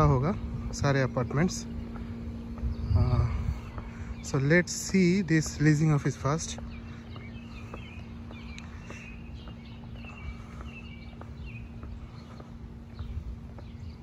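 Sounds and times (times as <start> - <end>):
faint steady hum: 0.0 - 14.0
low outdoor rumble: 0.0 - 14.0
small birds chirping: 0.0 - 14.0
soft footsteps on pavement: 0.0 - 14.0.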